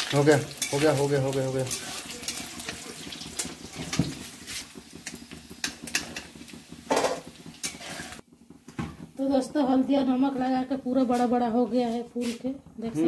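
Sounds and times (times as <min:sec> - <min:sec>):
cheese frying in hot oil: 0:00.0 - 0:13.0
metal ladle scraping a pan: 0:00.1 - 0:08.2.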